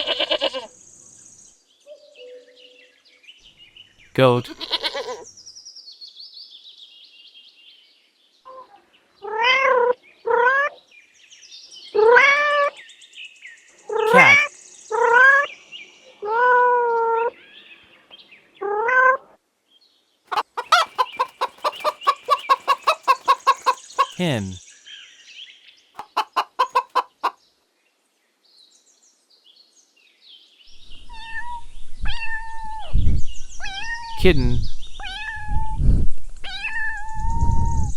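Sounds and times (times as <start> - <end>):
cat meowing: 4.5 - 5.2, 31.1 - 32.8, 35.0 - 35.7
kitten meowing: 4.5 - 5.2
hen clucking: 14.1 - 14.4, 20.3 - 24.6, 26.0 - 27.4
faint high chirping: 20.3 - 24.6.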